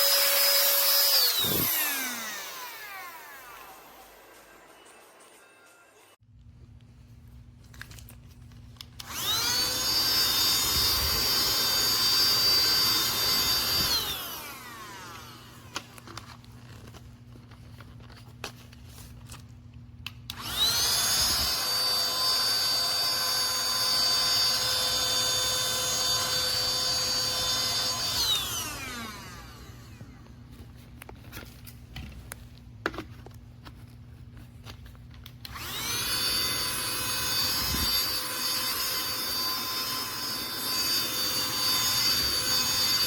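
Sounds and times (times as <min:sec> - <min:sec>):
handheld vacuum motor whining: 0:00.0 - 0:04.8, 0:09.0 - 0:16.2, 0:20.3 - 0:30.4, 0:35.2 - 0:43.0.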